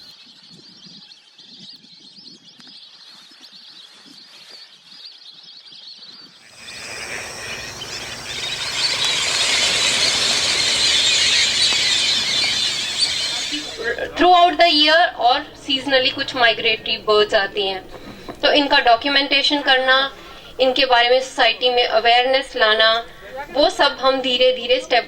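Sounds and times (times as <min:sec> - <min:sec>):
wetland birds chattering: 0:06.4 - 0:17.0.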